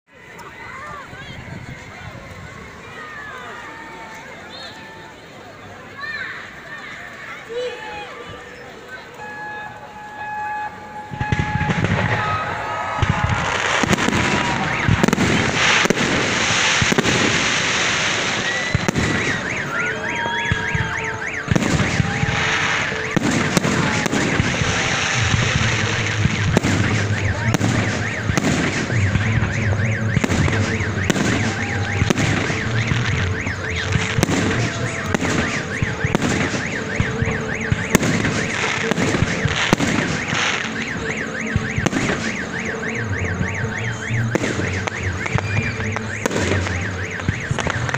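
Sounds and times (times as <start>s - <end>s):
whistling and warbling fireworks: 0.1s - 47.9s
firework shells bursting: 11.1s - 42.4s.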